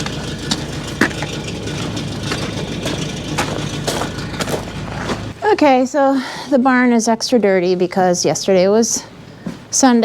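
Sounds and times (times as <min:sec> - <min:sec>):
sharp clicks and knocks: 0:00.0 - 0:05.3
engine idling: 0:00.0 - 0:05.6.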